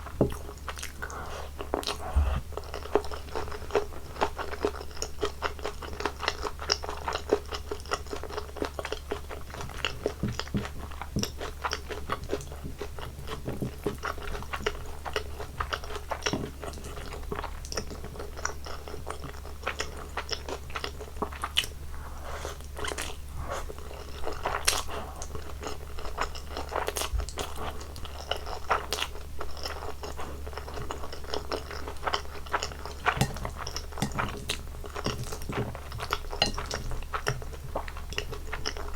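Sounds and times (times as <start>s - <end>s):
steady low hum: 0.0s - 4.2s
person chewing and crunching food: 0.0s - 38.9s.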